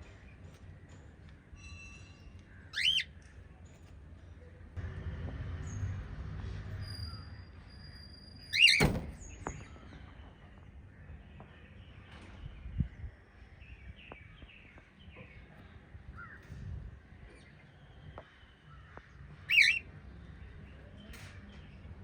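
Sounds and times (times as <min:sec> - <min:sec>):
birds chirping softly: 0:00.0 - 0:06.1, 0:06.7 - 0:22.0
loud shrill bird call: 0:02.7 - 0:03.1, 0:07.3 - 0:09.0, 0:19.5 - 0:19.8.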